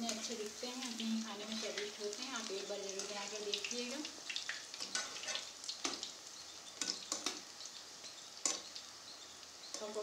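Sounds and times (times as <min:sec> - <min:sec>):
deep frying crackling hiss: 0:00.0 - 0:10.0
metal spoon scraping pan: 0:04.8 - 0:06.0.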